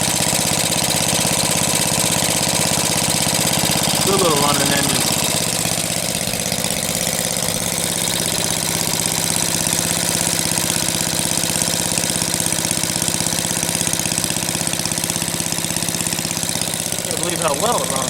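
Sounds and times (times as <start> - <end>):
single-cylinder engine running: 0.0 - 18.0.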